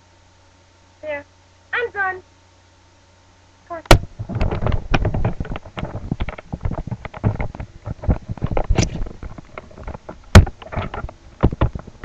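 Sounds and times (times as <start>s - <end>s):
sharp loud thump: 3.9s - 4.6s
clattering taps and knocks: 3.9s - 11.9s.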